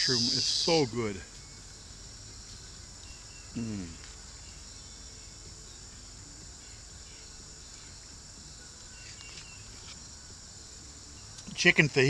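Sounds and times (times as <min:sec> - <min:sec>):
insect chorus trilling: 0:00.0 - 0:12.0
faint ticks: 0:02.4 - 0:04.3, 0:08.6 - 0:10.5, 0:11.1 - 0:12.0.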